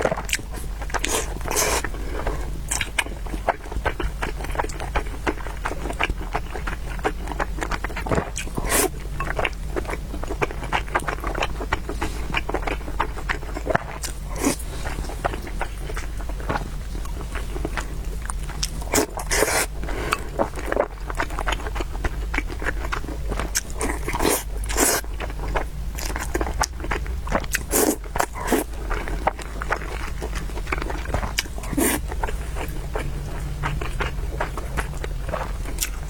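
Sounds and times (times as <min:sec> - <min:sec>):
chewing with wet mouth clicks: 0:00.0 - 0:36.0
person slurping noodles: 0:18.9 - 0:20.2, 0:27.5 - 0:28.7, 0:31.6 - 0:32.1.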